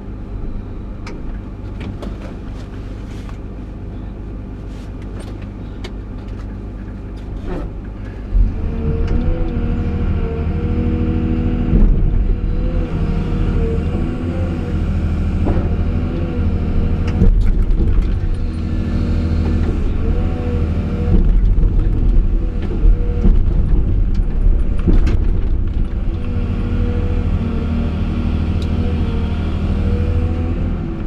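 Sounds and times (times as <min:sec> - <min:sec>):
excavator diesel engine revving: 0:08.3 - 0:31.0.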